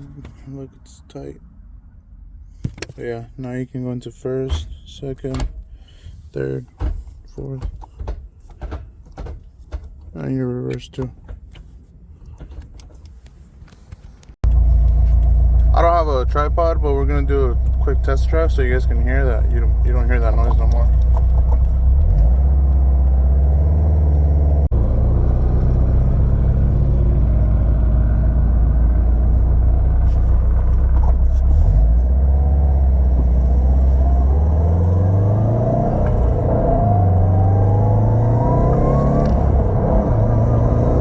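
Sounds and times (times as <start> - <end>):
car engine drone: 14.4 - 41.0.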